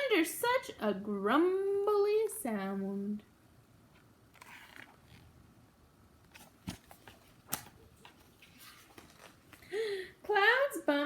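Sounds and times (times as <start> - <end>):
book pages rustling: 3.9 - 5.4, 6.2 - 9.7.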